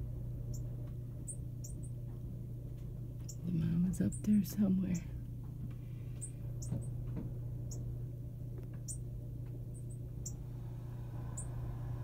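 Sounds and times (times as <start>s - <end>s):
steady low hum: 0.0s - 12.0s
bird chirping high-pitched: 0.5s - 2.0s, 6.2s - 6.9s, 8.8s - 9.1s, 9.7s - 10.5s, 11.3s - 11.6s.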